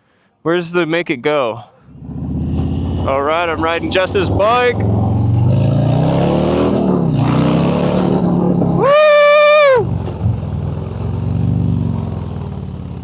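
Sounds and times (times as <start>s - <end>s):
motorcycle engine revving: 1.9s - 8.9s, 9.8s - 13.0s
person shouting woo: 8.8s - 9.9s.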